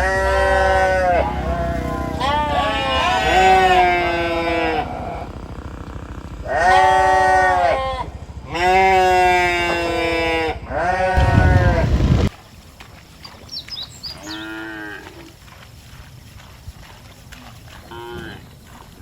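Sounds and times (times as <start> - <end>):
sheep or goat bleating: 0.0 - 5.3, 6.5 - 11.8, 14.2 - 15.3, 17.9 - 18.4
low rumble: 0.0 - 12.4.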